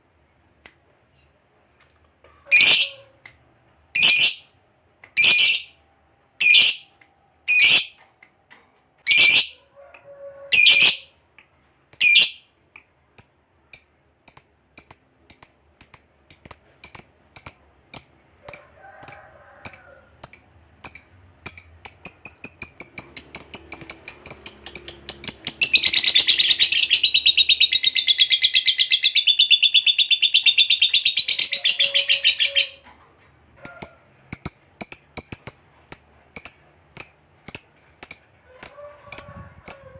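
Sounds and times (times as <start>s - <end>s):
lovebird chirping and chattering: 2.5s - 2.9s, 4.0s - 4.5s, 5.2s - 5.8s, 6.4s - 6.9s, 7.5s - 8.0s, 9.1s - 9.5s, 10.6s - 11.0s, 11.9s - 32.8s, 33.6s - 39.8s.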